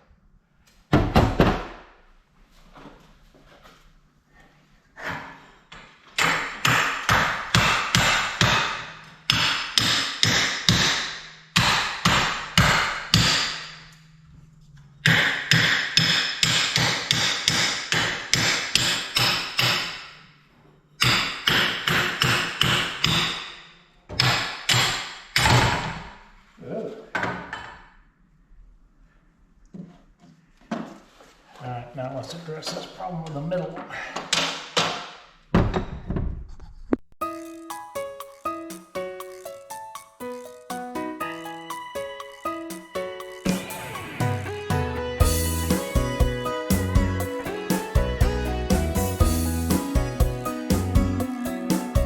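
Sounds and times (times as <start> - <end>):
hammer striking metal: 6.2 - 13.9, 15.0 - 20.2, 21.0 - 26.0, 42.7 - 52.0.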